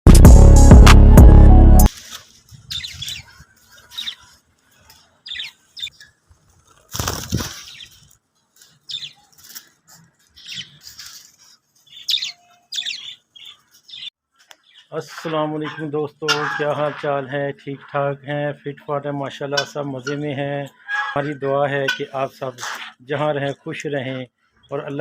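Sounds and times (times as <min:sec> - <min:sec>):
caged birds chirping: 0:02.0 - 0:25.0
wings flapping: 0:05.8 - 0:09.8.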